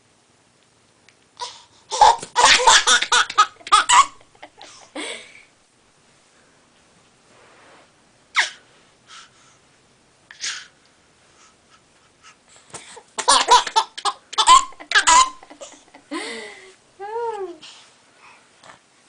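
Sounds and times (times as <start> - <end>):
baby laughing: 1.4 - 4.8, 13.2 - 16.0.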